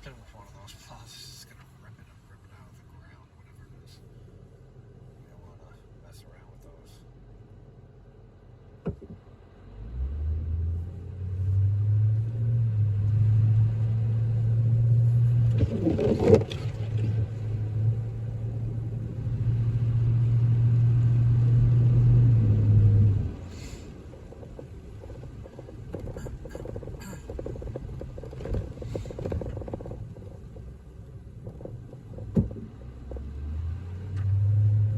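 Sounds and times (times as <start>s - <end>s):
vehicle engine drone: 0.0s - 34.9s.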